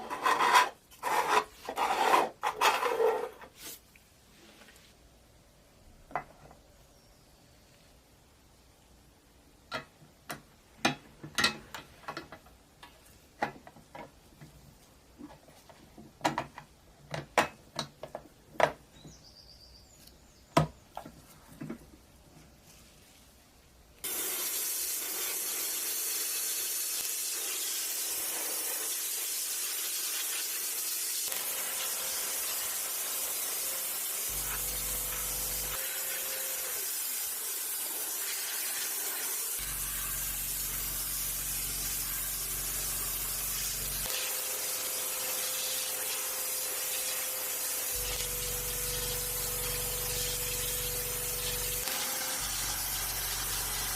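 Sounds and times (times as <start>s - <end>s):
spray paint hissing: 24.0s - 53.9s.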